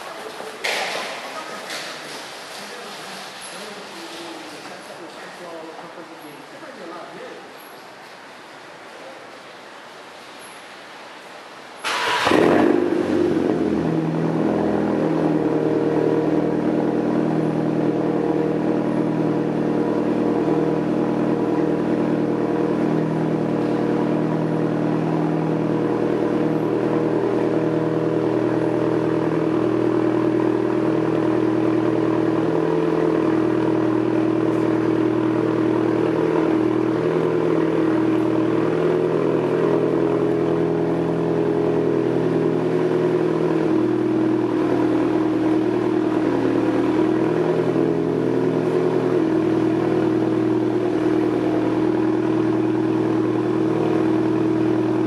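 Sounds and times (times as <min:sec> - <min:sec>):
loud car engine idling: 0:11.8 - 0:55.0.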